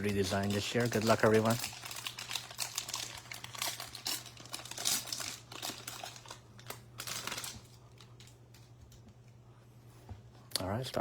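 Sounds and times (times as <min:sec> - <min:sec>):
plastic wrapper tearing and crinkling: 0:00.0 - 0:08.4.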